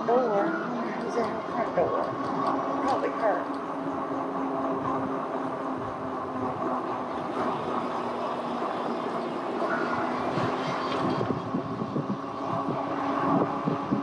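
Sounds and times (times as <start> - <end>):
rumble of passing vehicles: 0.0 - 14.0
wind buffeting microphone: 0.0 - 14.0.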